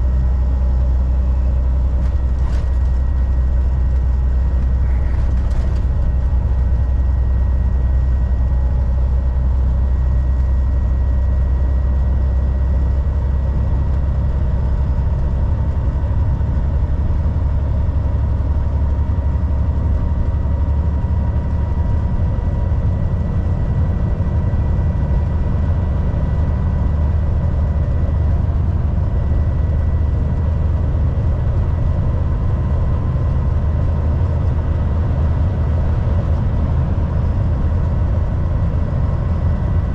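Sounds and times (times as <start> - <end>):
diesel truck engine drone: 0.0 - 39.9
road noise: 1.1 - 9.9.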